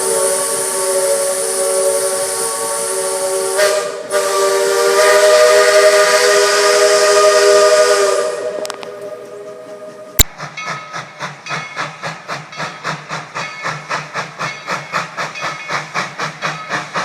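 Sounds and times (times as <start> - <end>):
steam hissing: 0.0 - 17.0
steam locomotive chime whistle: 0.0 - 17.0.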